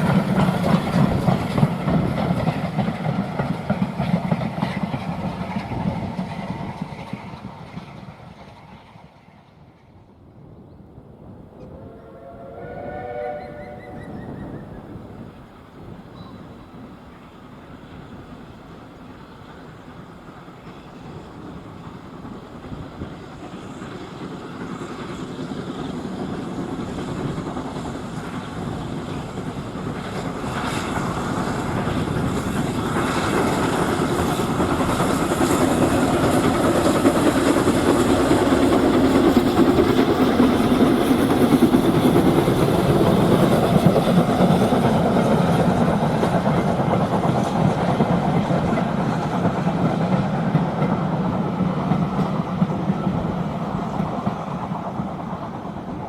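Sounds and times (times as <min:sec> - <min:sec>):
steam train approaching: 0:00.0 - 0:56.0.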